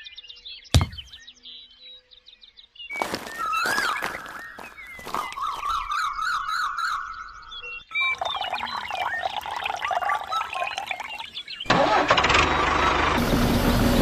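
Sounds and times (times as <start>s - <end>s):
birds chirping: 2.9s - 11.7s
warbling bird call: 3.0s - 11.6s.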